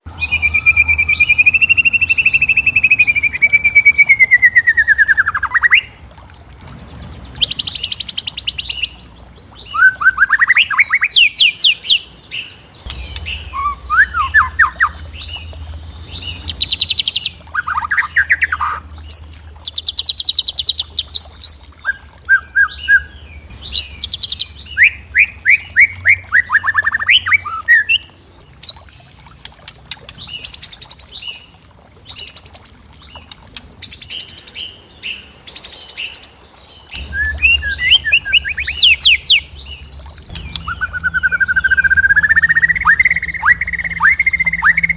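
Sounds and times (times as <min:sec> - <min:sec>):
bird trills and chirps: 0:00.0 - 0:44.9
long whistled bird note: 0:13.1 - 0:15.0.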